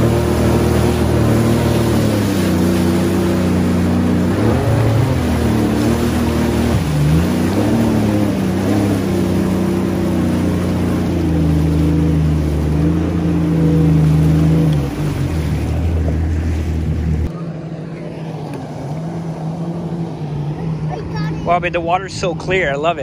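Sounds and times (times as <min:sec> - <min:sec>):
jet ski engine running: 0:00.0 - 0:23.0
water noise: 0:00.0 - 0:23.0.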